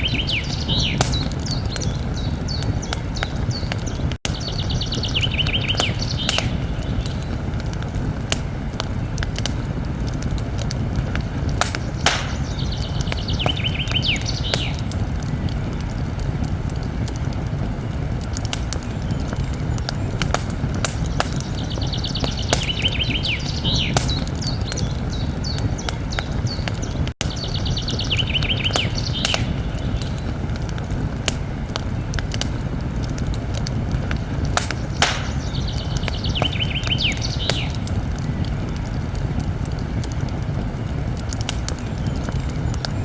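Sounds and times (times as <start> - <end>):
songbird trilling: 0.0 - 3.7, 4.4 - 7.2, 11.7 - 14.8, 21.4 - 25.9, 27.3 - 30.2, 34.7 - 37.7
campfire crackling: 0.0 - 43.0.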